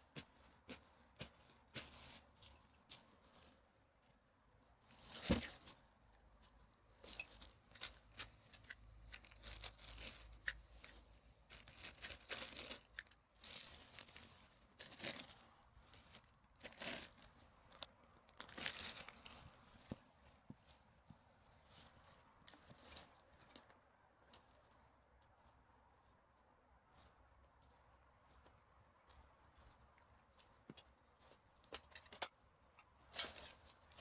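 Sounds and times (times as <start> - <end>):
litter rustling and crinkling: 0.0 - 25.5, 29.6 - 34.0.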